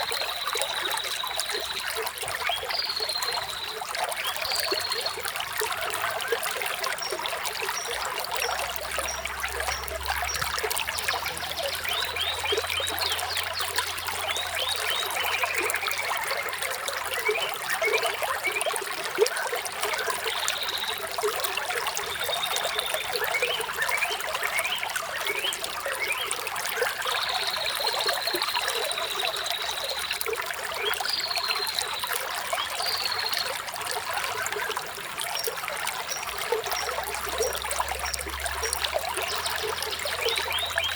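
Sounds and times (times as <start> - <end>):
water trickling and babbling: 0.0 - 40.9
small birds chirping: 19.9 - 40.9.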